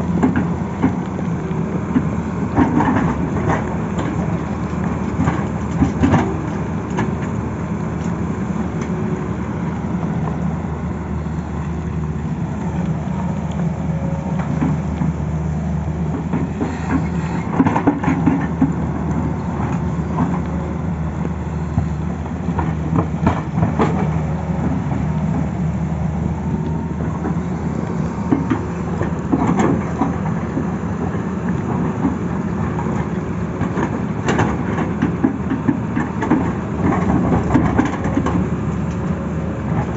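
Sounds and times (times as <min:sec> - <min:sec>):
excavator diesel engine running: 0:00.0 - 0:39.9
knocks and clatter: 0:01.9 - 0:07.4, 0:16.1 - 0:20.4, 0:31.7 - 0:38.5.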